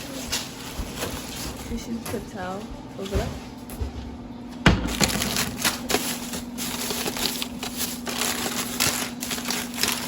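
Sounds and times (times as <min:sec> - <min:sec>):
plastic wrap crinkling: 0:04.9 - 0:10.0.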